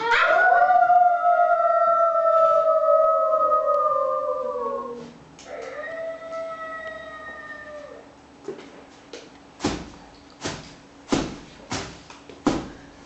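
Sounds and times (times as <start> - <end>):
wolves howling: 0.0 - 8.1.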